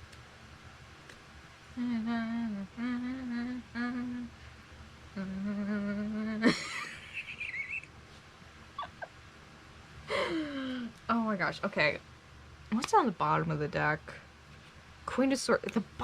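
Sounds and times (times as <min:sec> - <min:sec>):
woman humming: 0:01.8 - 0:04.4, 0:05.1 - 0:06.9, 0:10.1 - 0:11.0.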